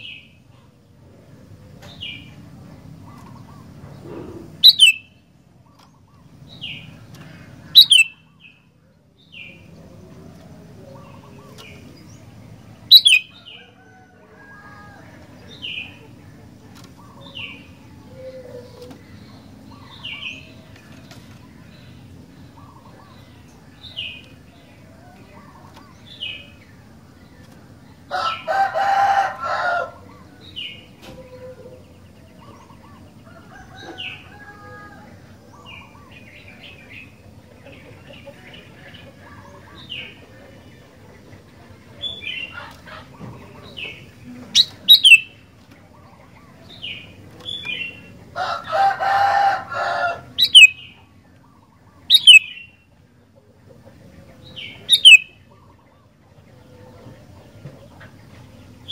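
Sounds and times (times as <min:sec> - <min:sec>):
bird chirping: 0:04.6 - 0:05.2, 0:07.7 - 0:08.6, 0:12.8 - 0:13.6, 0:44.6 - 0:45.4, 0:50.4 - 0:51.1, 0:51.8 - 0:52.8, 0:54.5 - 0:55.6
long loud bird call: 0:04.6 - 0:05.2, 0:07.7 - 0:08.4, 0:12.9 - 0:14.9, 0:44.6 - 0:45.4, 0:47.8 - 0:52.9, 0:54.6 - 0:55.9.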